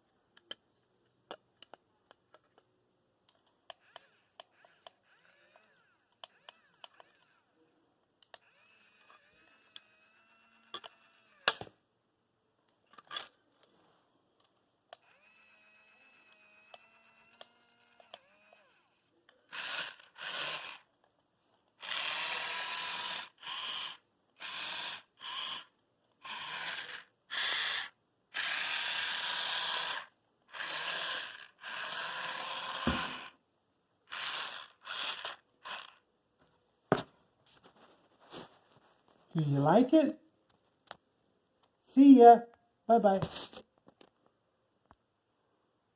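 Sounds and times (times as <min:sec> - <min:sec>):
toy clicks: 0:03.3 - 0:07.5, 0:08.2 - 0:11.7, 0:14.9 - 0:20.9, 0:21.8 - 0:33.3
toy electric motors whirring: 0:03.7 - 0:07.6, 0:08.3 - 0:11.6, 0:15.0 - 0:20.9, 0:21.8 - 0:33.4, 0:34.1 - 0:36.0.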